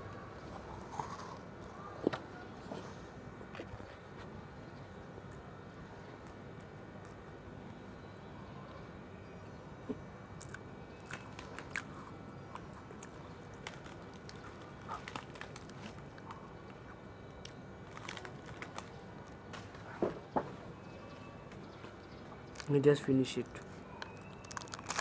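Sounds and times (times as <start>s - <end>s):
faint background noise: 0.0s - 25.0s
person chewing crunchy food: 10.4s - 19.4s, 24.0s - 25.0s.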